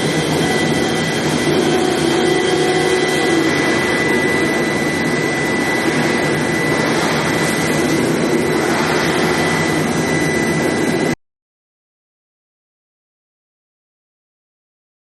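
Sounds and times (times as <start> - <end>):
high-pitched whine: 0.0 - 11.2
steady industrial noise: 0.0 - 11.2.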